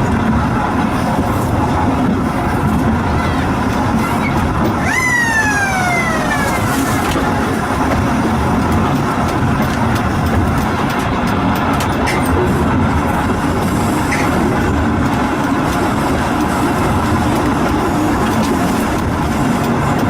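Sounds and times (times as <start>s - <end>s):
vehicle rumbling: 0.0s - 20.0s
sliding pitched tone: 3.9s - 7.5s.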